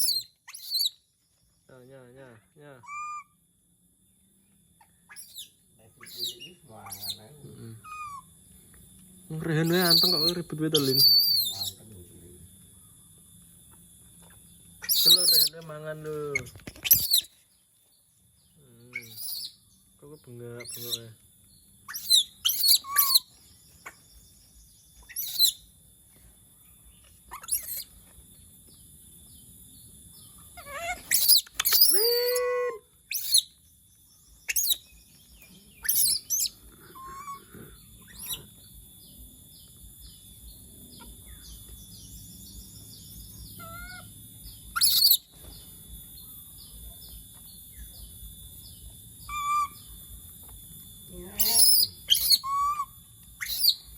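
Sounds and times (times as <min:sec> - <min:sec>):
monkey screeching: 0:00.0 - 0:01.0, 0:02.8 - 0:03.4, 0:05.1 - 0:08.3, 0:09.6 - 0:11.8, 0:14.8 - 0:17.3, 0:18.9 - 0:19.6, 0:20.6 - 0:21.1, 0:21.9 - 0:23.3, 0:25.0 - 0:25.6, 0:27.3 - 0:27.9, 0:30.6 - 0:33.5, 0:34.5 - 0:34.8, 0:35.8 - 0:38.5, 0:43.6 - 0:44.1, 0:44.7 - 0:45.3, 0:49.3 - 0:49.8, 0:51.3 - 0:53.9.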